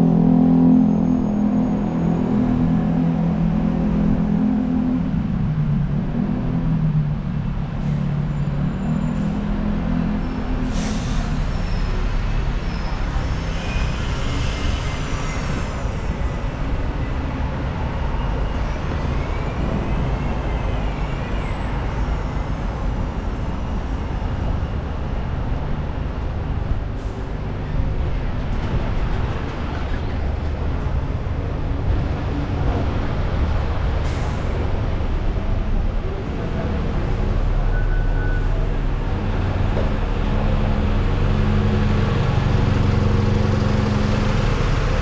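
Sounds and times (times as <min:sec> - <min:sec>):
heavy engine running: 0:00.0 - 0:45.0
rumble of passing vehicles: 0:00.0 - 0:45.0
air brakes hissing: 0:10.4 - 0:16.4, 0:34.0 - 0:34.8.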